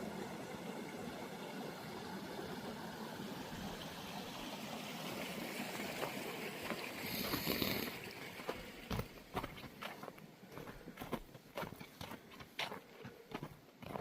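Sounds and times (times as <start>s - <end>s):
creek water rushing: 0.0s - 12.2s
footsteps clicking: 8.9s - 14.0s.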